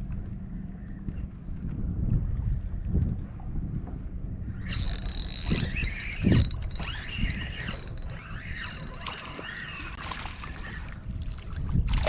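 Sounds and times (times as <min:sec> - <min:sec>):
fishing reel whine: 0:04.5 - 0:11.0.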